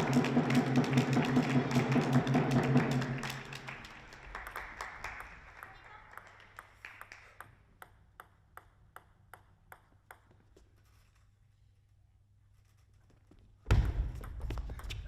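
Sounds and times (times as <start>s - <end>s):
table tennis ball bouncing: 5.2s - 10.8s, 13.7s - 15.0s.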